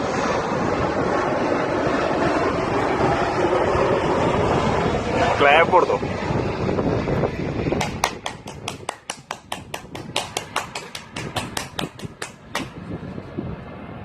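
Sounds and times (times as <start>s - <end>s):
hands clapping: 7.8s - 12.8s.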